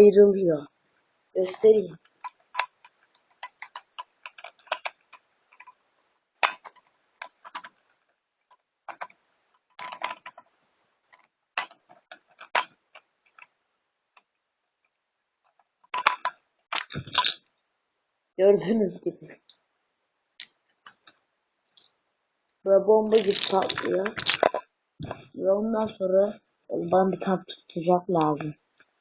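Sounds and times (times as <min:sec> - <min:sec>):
plastic puzzle cube clicking: 0:02.0 - 0:05.8, 0:06.4 - 0:07.8, 0:08.9 - 0:10.5, 0:11.1 - 0:13.5, 0:15.9 - 0:17.4, 0:20.4 - 0:21.2, 0:23.1 - 0:24.7.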